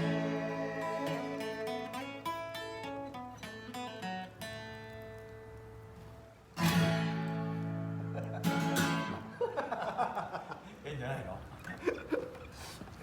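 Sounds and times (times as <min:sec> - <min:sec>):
acoustic guitar playing: 0:00.0 - 0:09.8.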